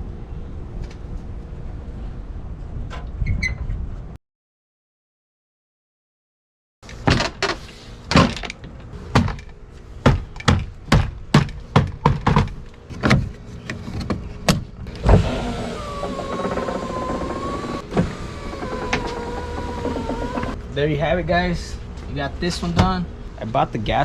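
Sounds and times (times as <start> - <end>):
power window motor whining: 14.9 - 20.6.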